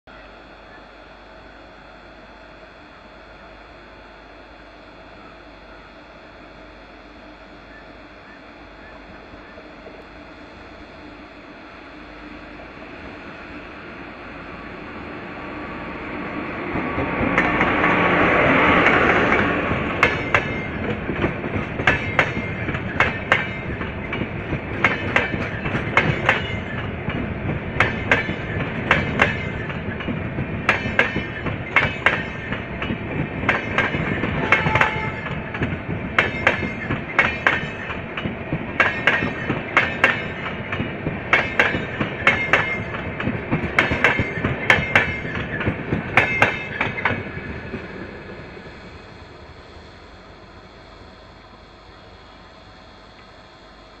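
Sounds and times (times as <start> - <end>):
train rolling rush: 0.1 - 54.0
locomotive passing with rush: 8.6 - 53.2
train wheels clattering over rail joints: 16.7 - 48.4.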